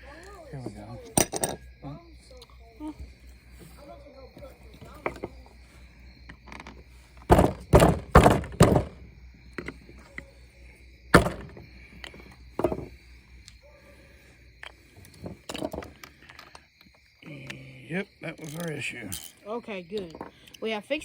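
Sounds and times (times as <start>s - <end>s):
hard knocks: 7.2s - 9.7s, 11.1s - 11.7s, 12.6s - 13.0s.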